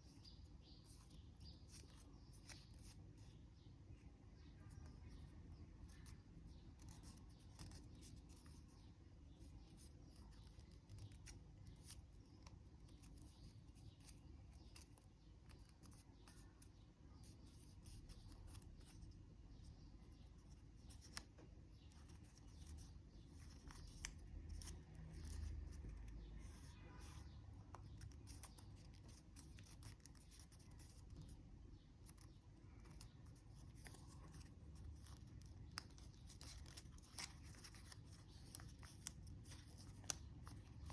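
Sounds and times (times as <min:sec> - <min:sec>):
paper folding and crinkling: 0:32.0 - 0:40.9.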